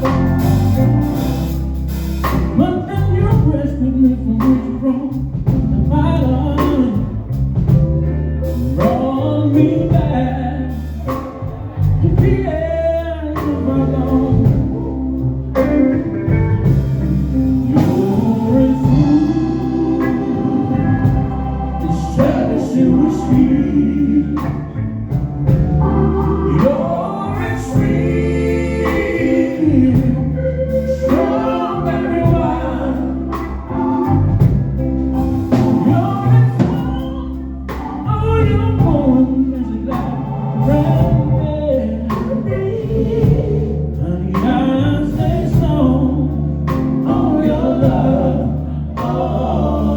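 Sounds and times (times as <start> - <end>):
live band playing slow song: 0.0 - 49.9
people singing: 8.5 - 49.9.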